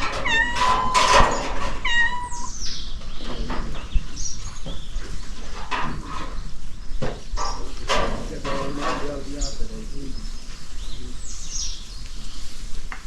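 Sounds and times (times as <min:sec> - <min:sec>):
high-pitched animal calls: 0:00.0 - 0:02.7
faint knocks: 0:00.0 - 0:09.2
steady background noise: 0:00.0 - 0:13.0.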